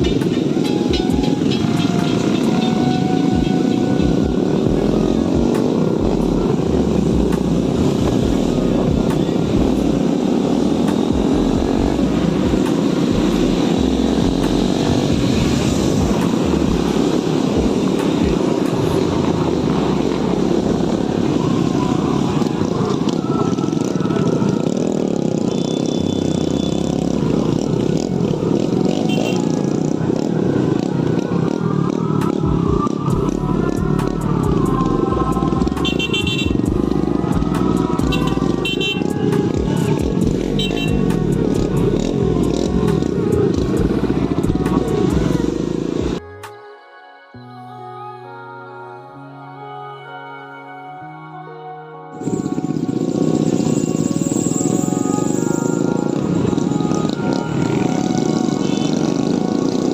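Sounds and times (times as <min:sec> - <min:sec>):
motorcycle running: 0:00.0 - 0:46.2, 0:52.2 - 0:59.9.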